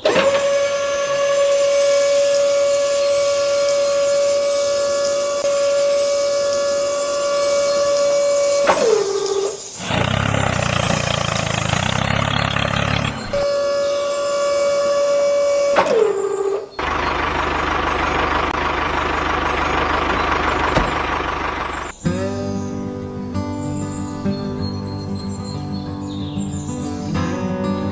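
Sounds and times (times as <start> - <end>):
engine-like rumble: 9.8 - 13.4, 16.8 - 24.3
music: 22.0 - 27.9.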